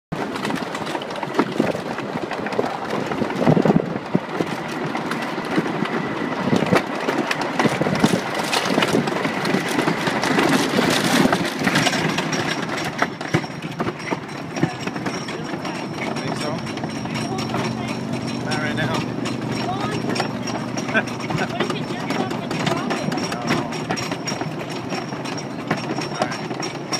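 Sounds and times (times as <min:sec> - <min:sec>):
roller coaster clacks and rattles: 0:00.1 - 0:26.9
roller coaster rumbling: 0:00.1 - 0:26.9.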